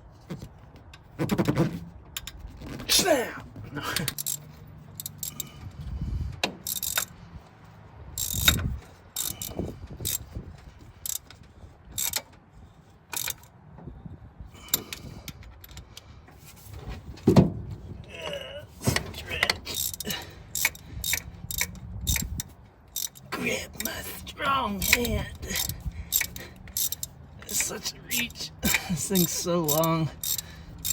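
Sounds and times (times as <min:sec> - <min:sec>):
ratchet clicks: 0:02.1 - 0:02.8, 0:04.0 - 0:05.5, 0:06.4 - 0:07.2, 0:08.1 - 0:10.3, 0:11.0 - 0:12.3, 0:13.1 - 0:13.5, 0:14.7 - 0:16.0, 0:18.9 - 0:30.9
hand tools clanking on metal: 0:18.1 - 0:30.9.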